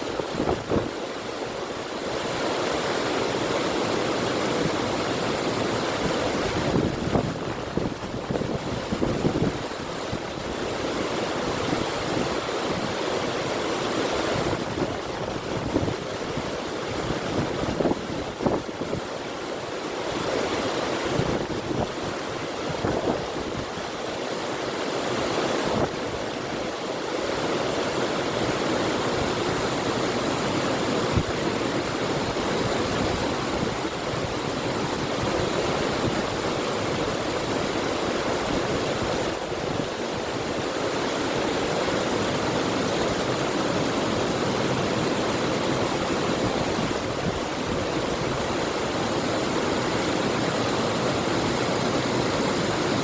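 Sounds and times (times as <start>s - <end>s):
river water flowing: 0.0s - 53.0s
wind: 0.0s - 53.0s.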